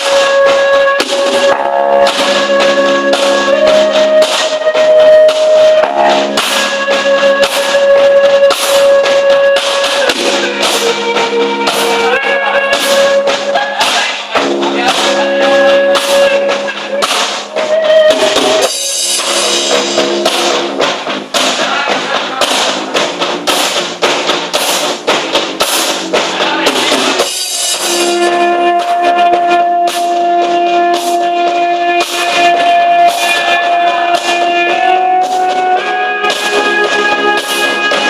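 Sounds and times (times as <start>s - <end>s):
drum kit beating: 0.0s - 38.0s
sustained held chords: 5.1s - 8.5s.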